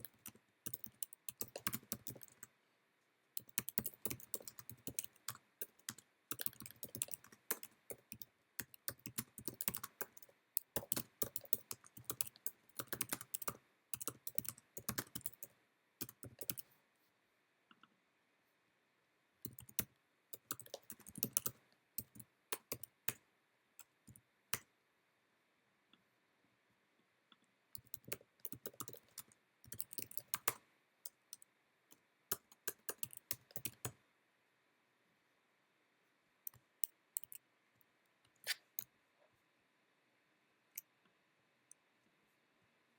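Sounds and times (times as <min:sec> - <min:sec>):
typing on keyboard: 0:00.0 - 0:02.5, 0:03.4 - 0:16.7, 0:19.5 - 0:23.2, 0:27.8 - 0:31.2, 0:32.3 - 0:34.0, 0:36.5 - 0:37.4.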